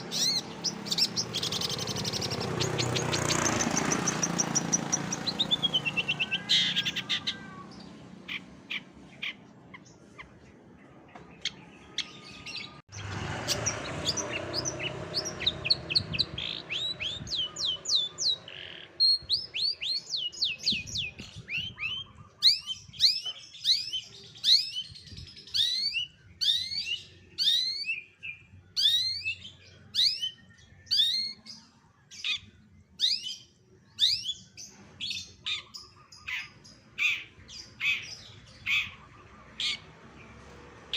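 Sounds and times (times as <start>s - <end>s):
songbird chirps and whistles: 15.2s - 39.0s.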